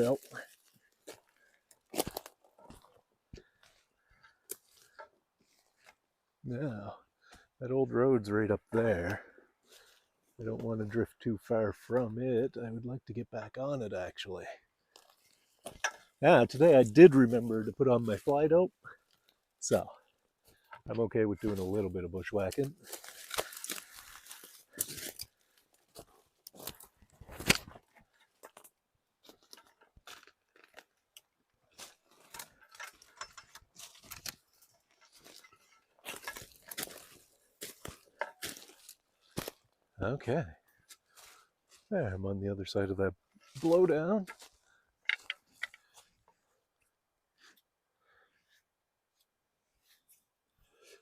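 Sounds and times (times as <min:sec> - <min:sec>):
leaves crackling underfoot: 0:00.0 - 0:02.8, 0:22.4 - 0:27.0, 0:33.8 - 0:39.7
footsteps on forest floor: 0:00.0 - 0:06.1, 0:08.9 - 0:10.7, 0:14.9 - 0:39.8, 0:40.6 - 0:41.9, 0:43.2 - 0:46.5
twigs snapping underfoot: 0:22.7 - 0:27.8, 0:28.4 - 0:39.6.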